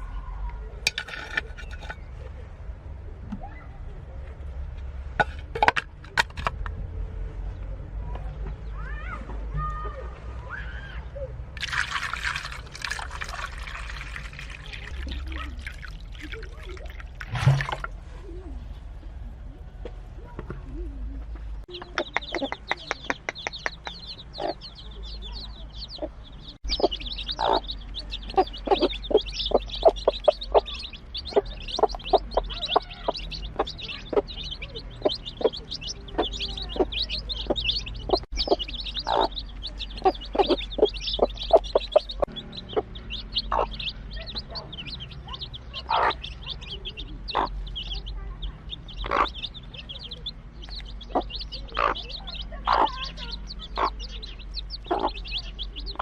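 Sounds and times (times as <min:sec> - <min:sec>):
chicks peeping: 0:20.2 - 0:56.0
hen clucking: 0:20.7 - 0:56.0.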